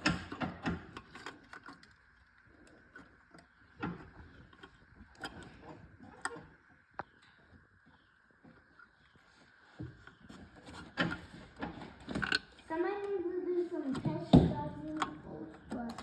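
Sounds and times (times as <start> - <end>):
tools and metal parts clicking: 0.0 - 5.4, 12.1 - 12.6.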